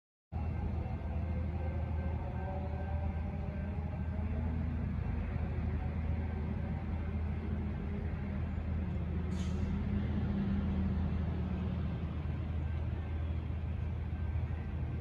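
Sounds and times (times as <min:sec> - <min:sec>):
distant diesel locomotive drone: 0:00.3 - 0:15.0.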